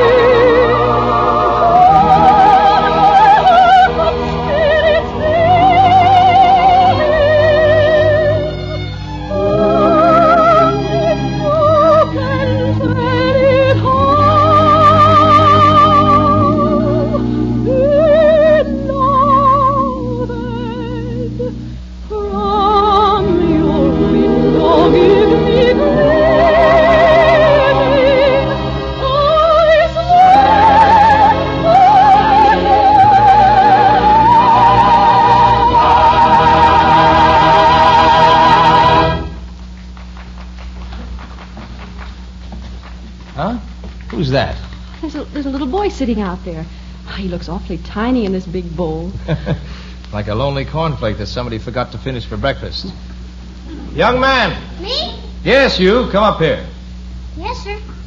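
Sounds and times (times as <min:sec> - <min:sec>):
orchestra playing: 0:00.0 - 0:21.7, 0:22.3 - 0:39.4
soprano singing with vibrato: 0:00.0 - 0:39.3.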